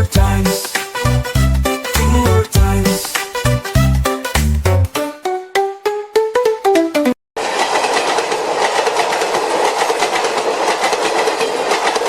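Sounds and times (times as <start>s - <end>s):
passenger train running: 7.4s - 12.0s
train wheel rattle: 7.4s - 12.0s.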